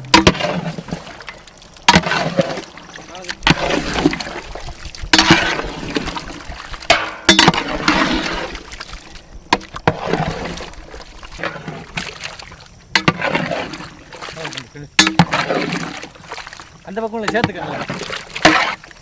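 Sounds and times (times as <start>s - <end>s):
wet sloshing and scraping: 0.0s - 19.0s
ladle knocking against pot: 15.0s - 15.4s.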